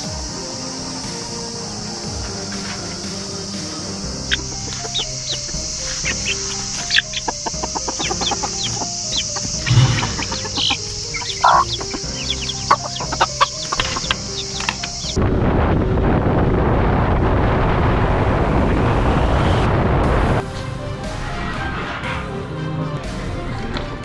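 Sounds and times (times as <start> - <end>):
chickens clucking: 0.0 - 15.2
background music with held notes: 0.0 - 17.0, 19.7 - 24.0.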